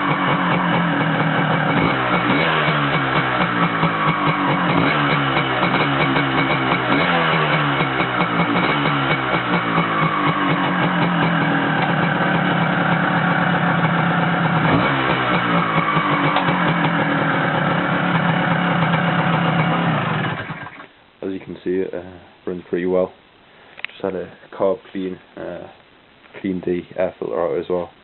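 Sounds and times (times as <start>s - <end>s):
two-stroke engine idling: 0.0s - 20.9s.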